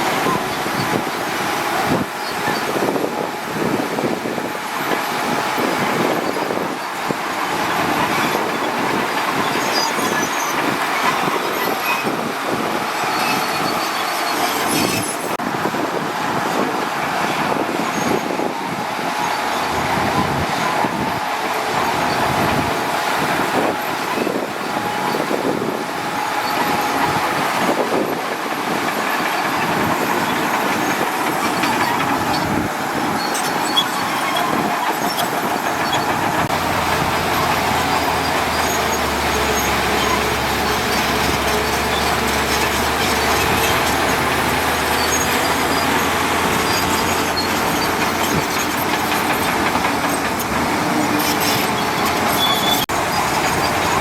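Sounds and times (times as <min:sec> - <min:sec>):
steel crawler tracks clanking: 0:00.0 - 0:54.0
diesel engine running: 0:15.4 - 0:54.0.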